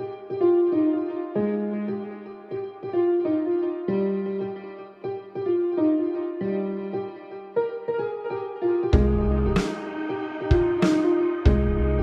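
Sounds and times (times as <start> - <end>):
melodic music with drum beat: 8.9 - 12.0.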